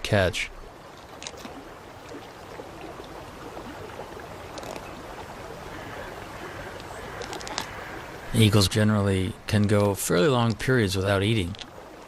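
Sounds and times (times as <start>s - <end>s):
flowing river water: 0.0s - 12.0s
faint clicks: 6.7s - 7.9s, 11.4s - 11.7s.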